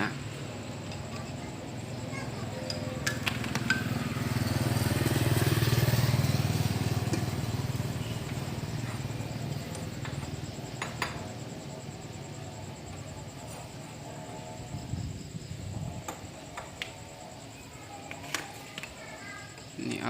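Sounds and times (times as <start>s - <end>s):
motorcycle engine passing by: 0.2s - 17.8s
knock: 10.8s - 11.3s.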